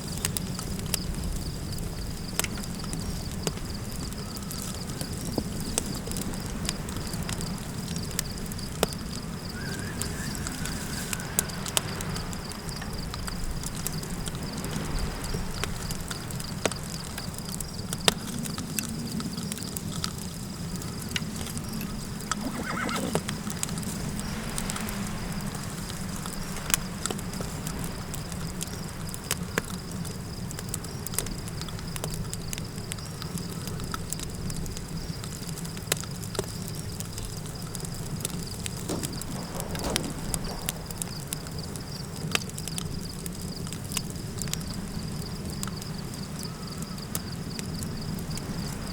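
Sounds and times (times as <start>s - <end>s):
low wind rumble: 0.0s - 31.0s, 36.5s - 48.9s
campfire crackling and popping: 0.0s - 48.9s
animal calls: 9.5s - 11.6s, 22.3s - 23.4s.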